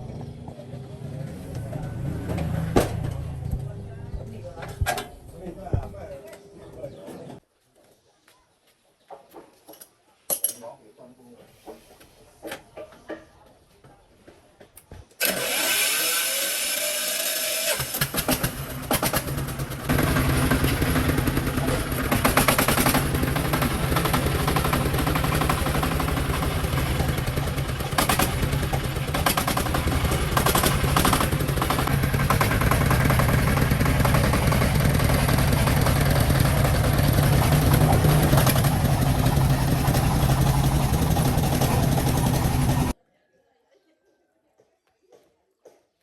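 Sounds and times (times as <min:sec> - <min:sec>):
four-wheeler engine running: 0:00.0 - 0:04.0, 0:15.2 - 0:43.0.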